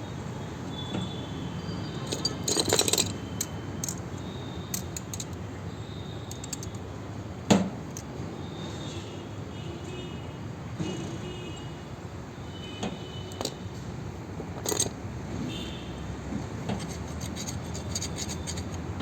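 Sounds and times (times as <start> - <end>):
metal tools clinking and rattling: 2.0 - 5.4, 6.3 - 6.8, 13.3 - 13.6, 14.5 - 15.0, 16.7 - 19.0
steady background hum: 16.6 - 19.0.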